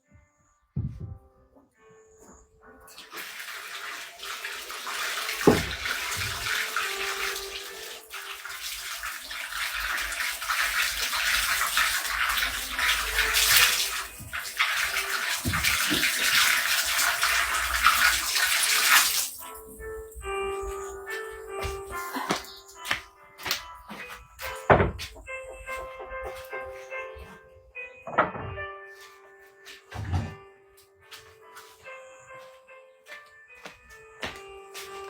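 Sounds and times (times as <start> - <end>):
water running and splashing: 2.9 - 27.0.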